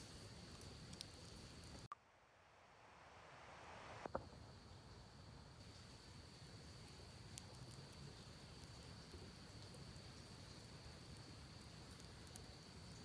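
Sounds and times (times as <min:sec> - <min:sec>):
campfire crackling: 0:00.0 - 0:01.9, 0:05.6 - 0:13.0.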